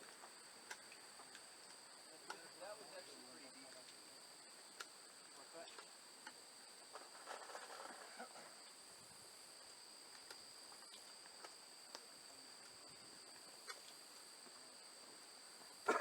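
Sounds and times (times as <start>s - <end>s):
faint clicks: 0.0s - 2.5s, 4.7s - 5.0s, 5.6s - 6.4s, 10.1s - 12.8s
high-pitched insect chorus: 0.0s - 16.0s.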